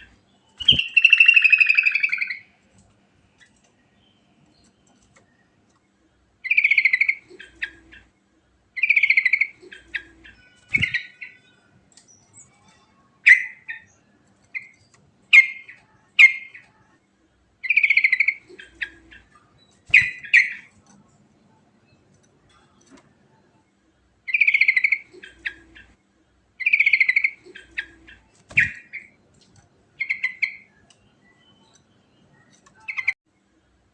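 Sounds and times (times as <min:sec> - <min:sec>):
bulbul singing: 0:00.0 - 0:02.5, 0:06.4 - 0:08.1, 0:08.8 - 0:16.8, 0:17.6 - 0:20.7, 0:24.3 - 0:26.0, 0:26.6 - 0:29.2, 0:29.9 - 0:33.2.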